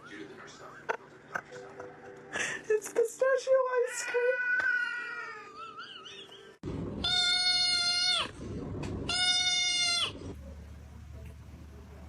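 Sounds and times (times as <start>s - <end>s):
cat meowing: 3.8s - 5.6s, 7.0s - 8.3s, 9.1s - 10.2s.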